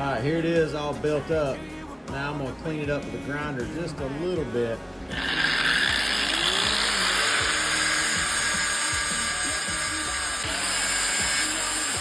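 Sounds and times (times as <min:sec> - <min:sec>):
grinder grinding metal: 0:05.1 - 0:12.0.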